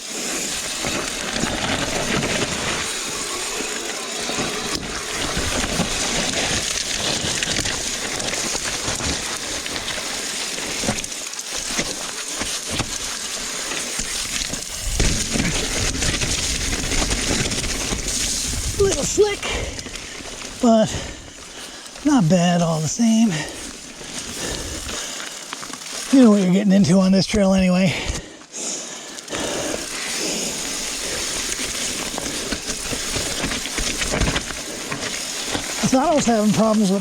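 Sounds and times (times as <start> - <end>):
bike knocking and rattling: 0.0 - 22.0, 29.4 - 37.0
bike tyres rolling on dirt: 0.0 - 37.0.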